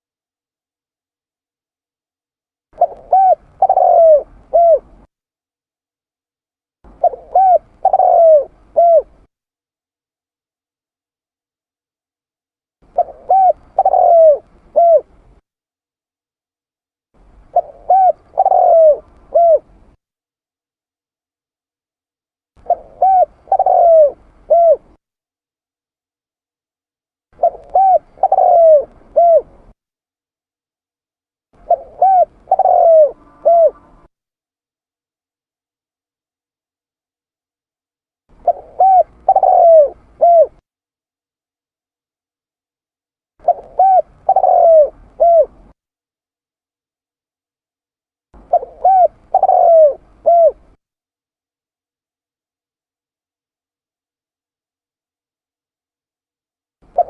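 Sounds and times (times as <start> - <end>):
dove cooing: 2.8 - 5.1, 6.9 - 9.3, 12.9 - 15.3, 17.3 - 19.9, 22.6 - 25.0, 27.4 - 29.8, 31.6 - 34.1, 38.3 - 40.6, 43.4 - 45.8, 48.4 - 50.8.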